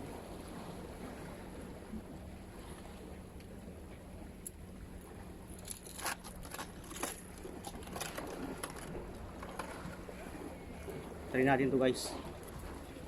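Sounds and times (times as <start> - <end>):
fishing tackle clicking and rattling: 5.5 - 9.8.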